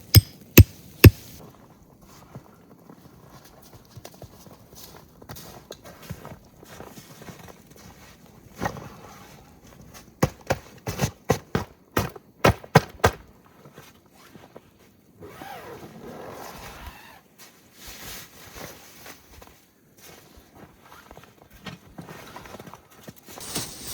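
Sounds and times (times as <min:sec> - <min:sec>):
sharp knocks: 0:00.1 - 0:01.2.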